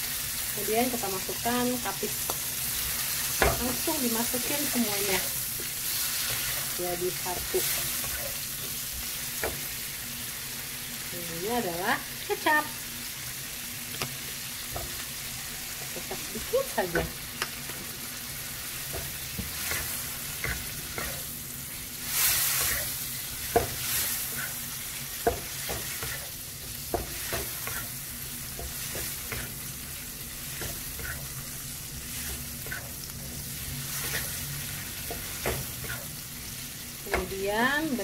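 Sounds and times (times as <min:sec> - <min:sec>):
seafood sizzling in a wok: 0:00.0 - 0:38.0
spatula knocking and scraping pan: 0:03.3 - 0:09.7, 0:15.8 - 0:17.8, 0:18.8 - 0:21.3, 0:22.5 - 0:29.8, 0:30.5 - 0:31.4, 0:32.0 - 0:33.3, 0:34.0 - 0:34.4, 0:35.0 - 0:36.2, 0:37.0 - 0:38.0.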